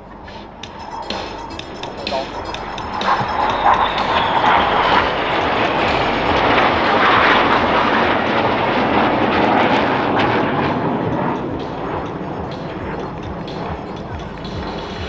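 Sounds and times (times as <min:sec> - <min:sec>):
jet roar passing: 0:00.1 - 0:15.0.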